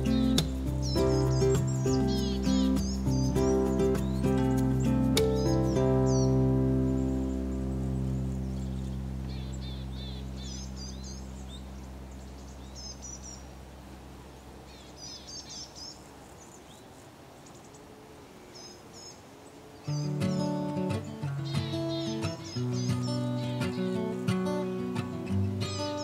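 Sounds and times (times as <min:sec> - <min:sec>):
held chord of background music: 0:00.0 - 0:10.2
small birds chirping: 0:00.0 - 0:26.0.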